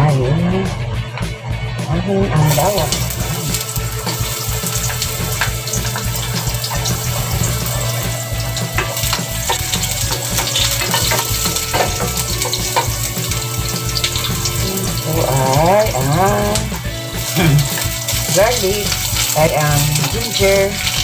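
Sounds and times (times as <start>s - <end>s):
garlic and ginger sizzling in pan: 2.5s - 21.0s
wooden spoon scraping and tapping pan: 3.5s - 14.5s.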